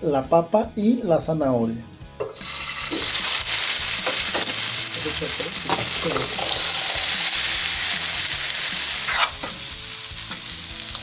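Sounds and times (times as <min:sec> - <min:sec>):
vegetables sizzling in oil: 0:02.3 - 0:11.0.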